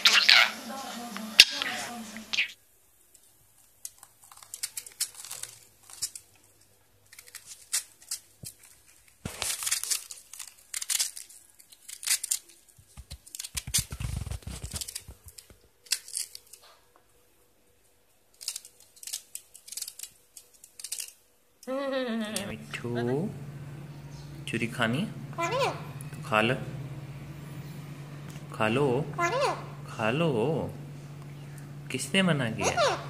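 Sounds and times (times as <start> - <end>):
tearing and crinkling: 3.6 - 16.8, 18.3 - 21.3.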